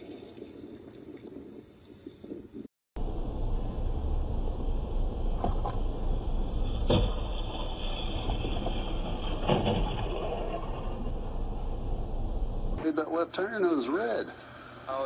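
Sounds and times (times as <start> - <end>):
car road and engine rumble: 3.0 - 12.8.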